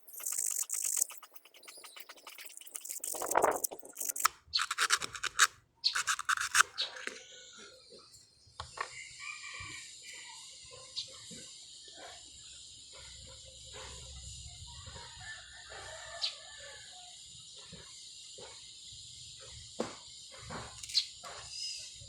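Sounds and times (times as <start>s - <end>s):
sharp clicks and taps: 0.0s - 7.2s
rooster crowing: 9.0s - 10.0s.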